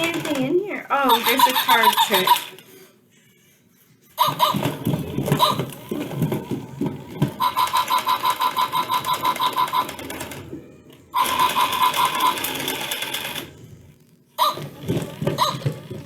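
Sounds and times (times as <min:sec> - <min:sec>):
robot toy rapid pulses: 0:00.0 - 0:02.6, 0:07.4 - 0:10.4, 0:11.1 - 0:13.6.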